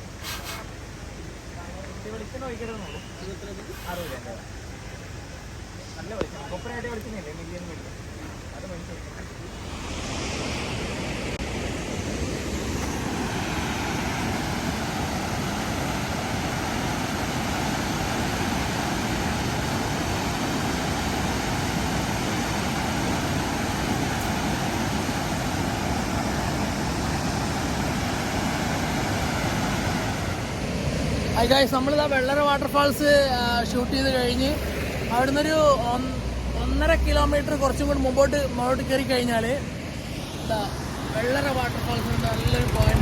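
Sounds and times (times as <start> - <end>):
waterfall roaring: 9.2 - 43.0.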